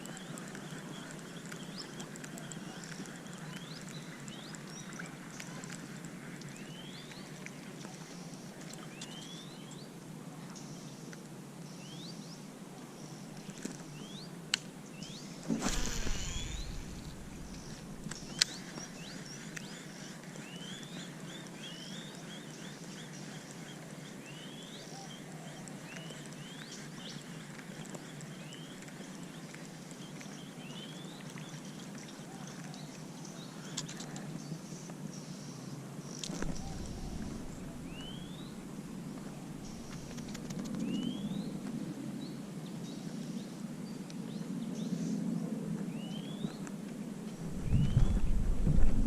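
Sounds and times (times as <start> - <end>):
steady hiss: 15.2 - 20.2
low thump with rustle: 15.4 - 18.4, 36.3 - 38.4, 47.4 - 49.0
rising animal chirps: 15.6 - 18.6.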